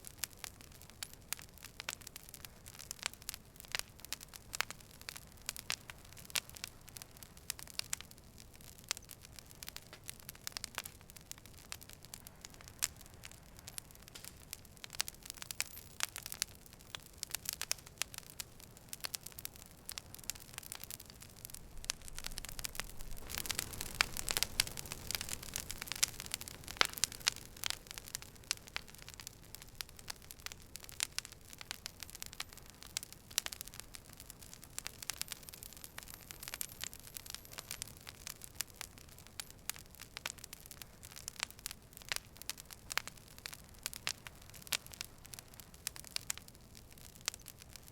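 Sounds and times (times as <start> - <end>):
campfire crackling: 0.0 - 47.9.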